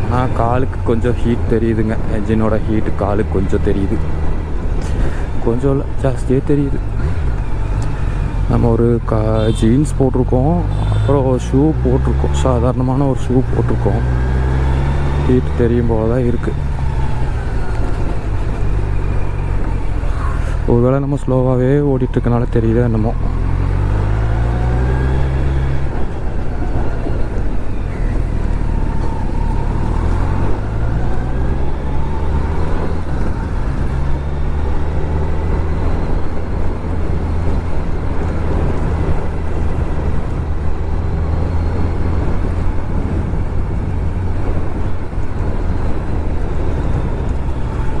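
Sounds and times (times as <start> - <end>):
motorcycle engine running: 6.6 - 9.7.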